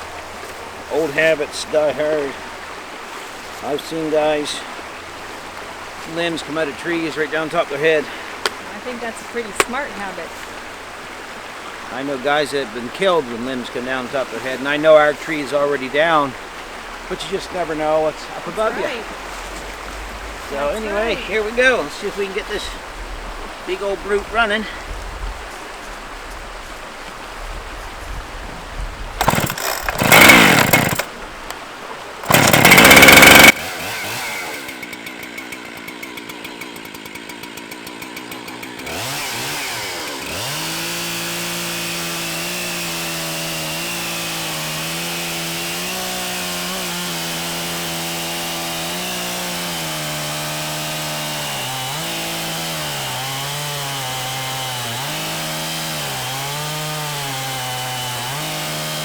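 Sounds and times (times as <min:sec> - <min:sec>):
chainsaw starting and revving: 0:07.2 - 0:12.3, 0:12.9 - 0:22.6, 0:29.2 - 0:31.2, 0:32.2 - 0:59.0.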